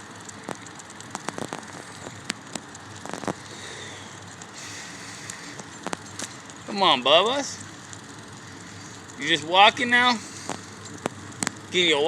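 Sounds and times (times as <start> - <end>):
bicycle clicks and rattles: 0.0 - 12.0
bicycle rolling: 0.0 - 12.0.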